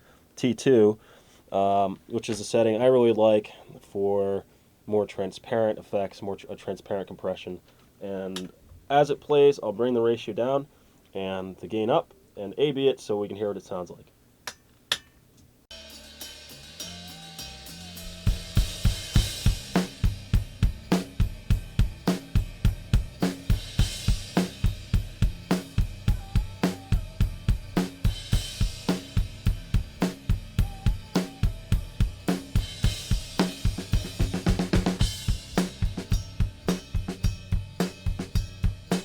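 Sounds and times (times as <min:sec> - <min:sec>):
rock drum kit playing fast beat: 0:15.7 - 0:39.0.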